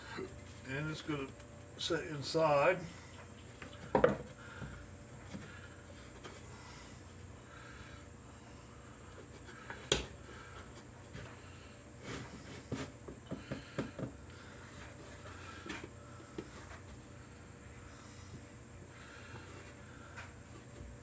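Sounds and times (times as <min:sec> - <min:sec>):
wooden boards knocking and tapping: 0:03.9 - 0:04.3.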